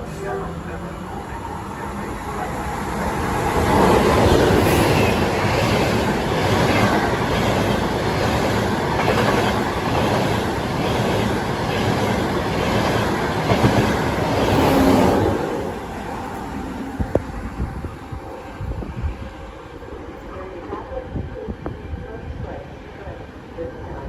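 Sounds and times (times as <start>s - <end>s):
train wheels clattering on rails: 3.7s - 15.2s.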